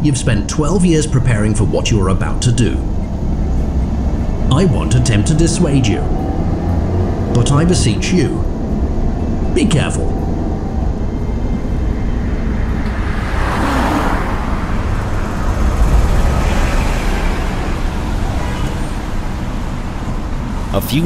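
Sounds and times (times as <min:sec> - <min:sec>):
car engine and road rumble: 0:00.0 - 0:21.0
car passing rush: 0:00.0 - 0:21.0.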